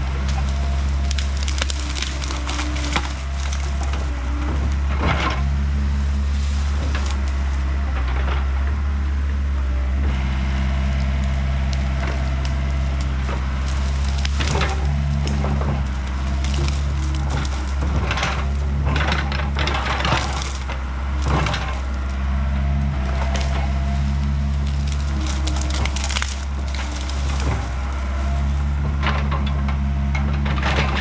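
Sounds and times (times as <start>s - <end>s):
wood cracking and splintering: 0.0s - 9.4s, 10.1s - 31.0s
excavator diesel engine: 0.0s - 31.0s
sharp wood snaps: 0.2s - 4.2s, 11.0s - 22.2s, 23.0s - 28.4s.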